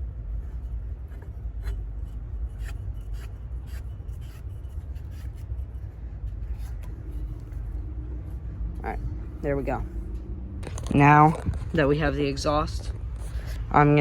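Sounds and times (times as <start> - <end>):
low rumble: 5.6 - 14.0.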